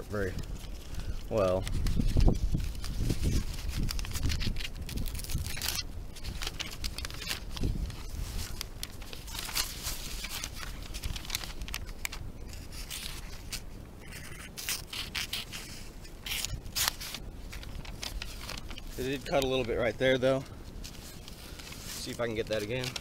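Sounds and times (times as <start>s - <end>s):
wind rumble on microphone: 0.0s - 13.5s
knife scraping through paper: 0.5s - 19.7s, 20.8s - 23.0s
paper tearing: 1.3s - 13.6s, 14.3s - 19.9s.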